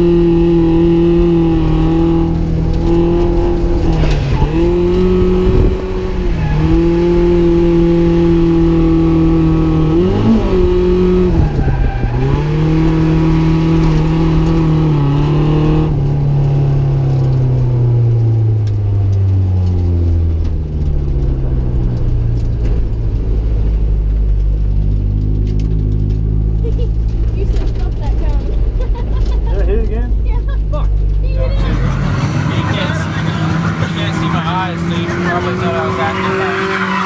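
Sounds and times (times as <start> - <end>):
car engine at high revs: 0.0 - 37.0.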